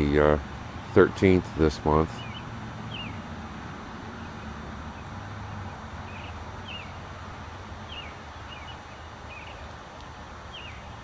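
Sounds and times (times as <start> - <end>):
bird chirps: 2.1 - 3.3, 5.7 - 7.0, 7.8 - 9.7, 10.5 - 11.0.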